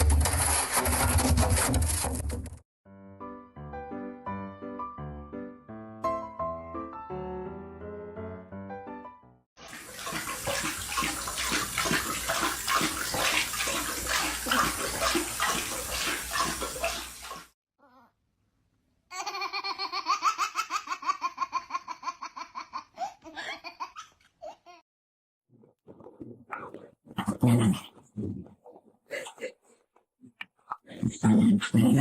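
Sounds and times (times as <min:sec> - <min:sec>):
water splashing and sloshing: 0:09.6 - 0:17.6.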